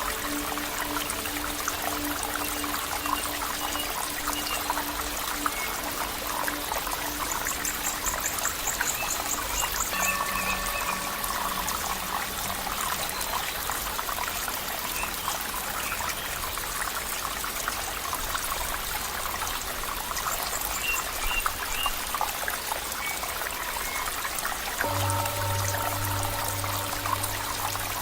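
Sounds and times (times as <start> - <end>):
stream water trickling: 0.0 - 28.0.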